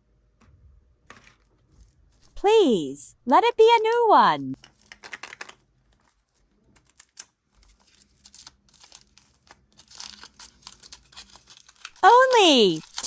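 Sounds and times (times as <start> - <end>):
packaging crinkling and tearing: 4.6 - 12.0, 12.7 - 13.0.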